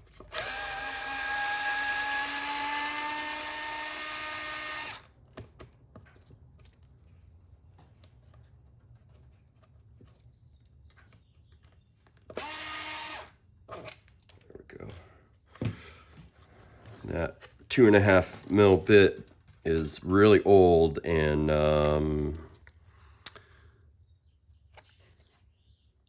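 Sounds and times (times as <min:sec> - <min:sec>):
electric screwdriver whine: 0:00.1 - 0:05.1, 0:12.3 - 0:13.4.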